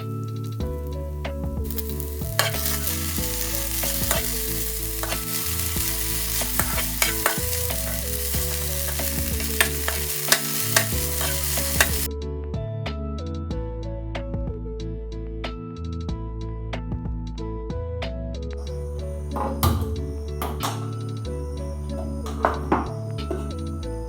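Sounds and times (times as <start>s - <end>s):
food sizzling in a pan: 1.6s - 12.1s
utensil clicking against pan: 1.7s - 12.1s.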